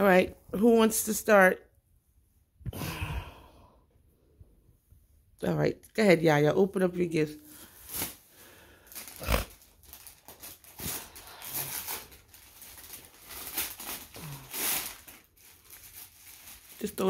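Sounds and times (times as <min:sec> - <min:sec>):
wrapping paper rustling and tearing: 0:07.7 - 0:17.0.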